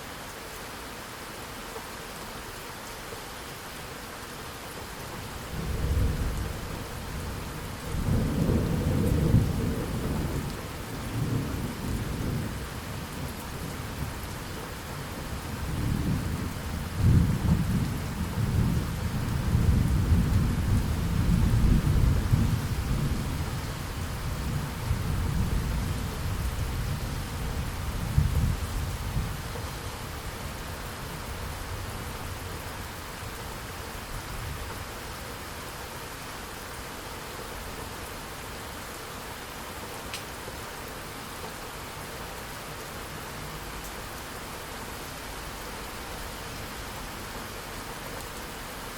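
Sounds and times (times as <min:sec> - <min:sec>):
steady rain hiss: 0:00.0 - 0:48.9
rolling thunder: 0:05.5 - 0:10.5, 0:15.6 - 0:29.4.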